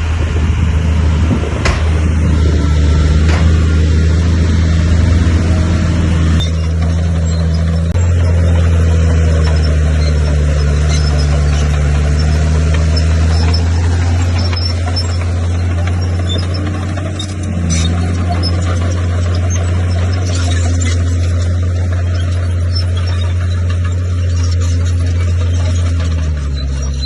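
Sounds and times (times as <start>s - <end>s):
bulldozer diesel engine drone: 0.0s - 27.0s
faint high squeaks: 6.4s - 27.0s.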